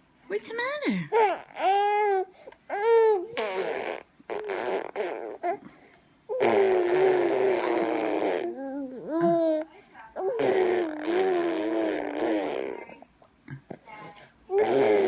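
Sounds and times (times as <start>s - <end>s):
baby cooing and squealing: 1.2s - 5.6s, 6.3s - 9.6s, 10.2s - 12.9s, 14.5s - 15.0s
baby blowing raspberries: 3.3s - 8.8s, 10.2s - 13.0s, 14.5s - 15.0s.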